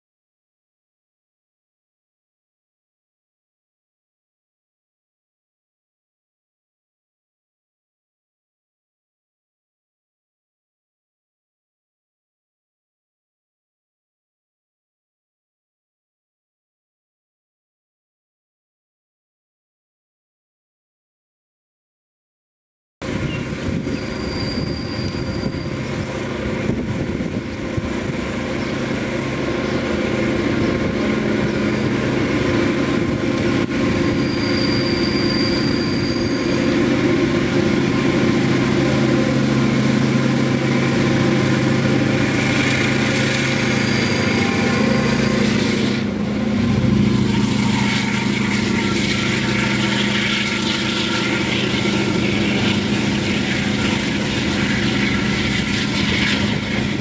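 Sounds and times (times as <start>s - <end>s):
locomotive engine drone: 23.0s - 57.0s
wagon wheels rattling on rails: 40.0s - 57.0s.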